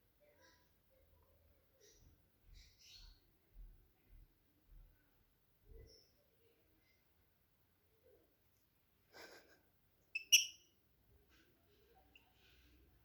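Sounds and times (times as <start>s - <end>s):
small bird chirping: 1.8s - 3.7s, 5.7s - 6.2s, 10.0s - 10.8s.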